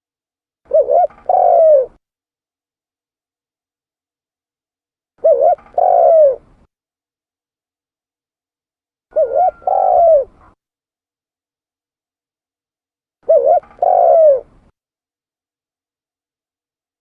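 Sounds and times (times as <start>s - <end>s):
dove cooing: 0.7s - 2.0s, 5.2s - 6.6s, 9.1s - 10.6s, 13.2s - 14.6s.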